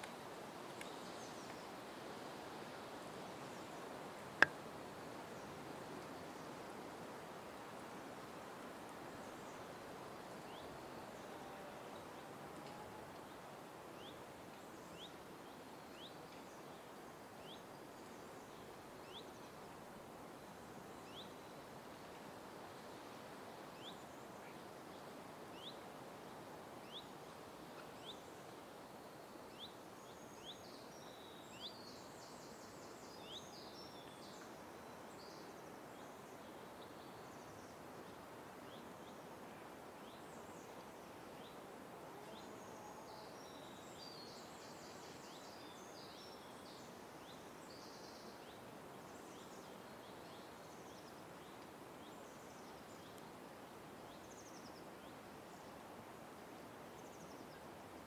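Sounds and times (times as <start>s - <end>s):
faint background hiss: 0.0s - 58.0s
birds twittering song: 14.0s - 19.4s, 29.2s - 39.3s, 42.3s - 53.3s.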